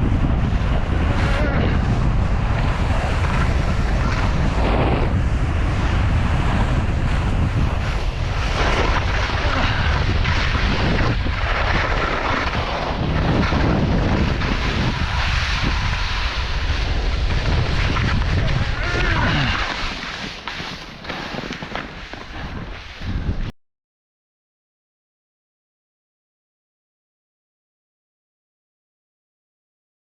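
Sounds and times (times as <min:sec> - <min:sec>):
wind buffeting microphone: 0:00.0 - 0:23.5
skis scraping on snow: 0:00.1 - 0:23.5.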